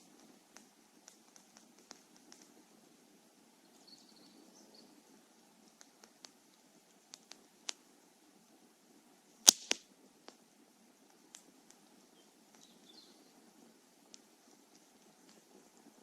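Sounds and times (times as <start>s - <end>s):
bonfire wood crackling: 0.0s - 16.0s
loud fire pop: 9.4s - 9.8s.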